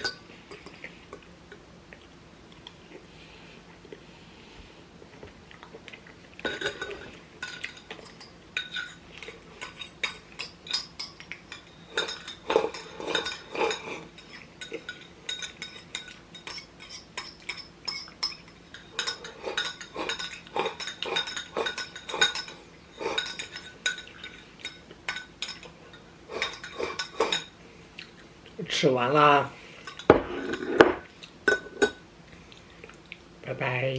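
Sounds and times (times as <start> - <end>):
utensils clinking against a plate: 0.0 - 1.2, 6.4 - 27.6, 29.8 - 32.0.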